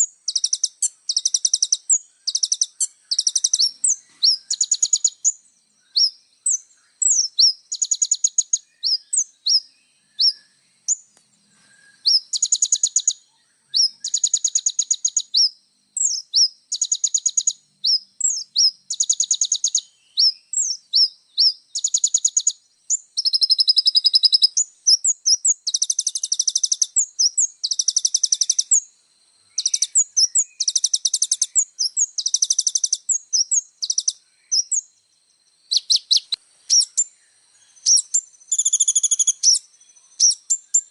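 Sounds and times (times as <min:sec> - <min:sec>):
short sharp bird chirps: 0:00.0 - 0:22.6, 0:35.7 - 0:40.9
bird singing rapid trills: 0:00.0 - 0:40.9.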